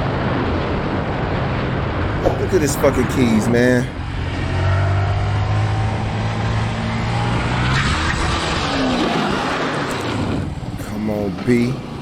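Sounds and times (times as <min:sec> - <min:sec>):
vehicle engine humming: 0:02.2 - 0:07.5
vehicle passing: 0:02.2 - 0:10.3.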